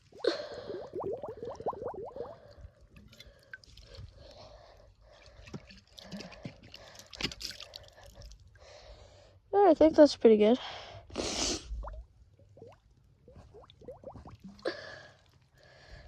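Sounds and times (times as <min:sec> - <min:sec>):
water drips and splashes: 0:00.0 - 0:08.6, 0:11.8 - 0:15.4
water sloshing in a bottle: 0:00.0 - 0:08.6, 0:11.8 - 0:15.5.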